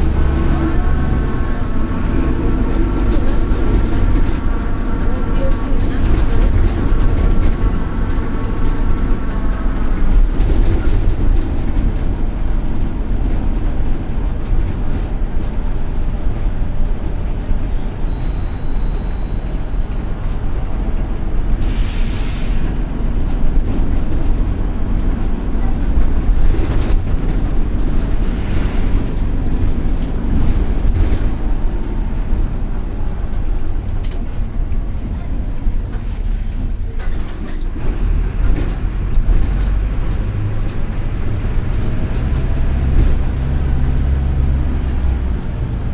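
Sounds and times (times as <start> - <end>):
bus diesel engine rumbling: 0.0 - 45.9
thin high whistle: 18.1 - 19.5
air hiss: 21.6 - 22.8.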